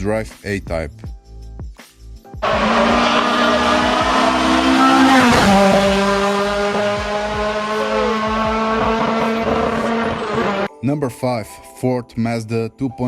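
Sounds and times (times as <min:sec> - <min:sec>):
race engine at high revs: 0:02.4 - 0:10.7.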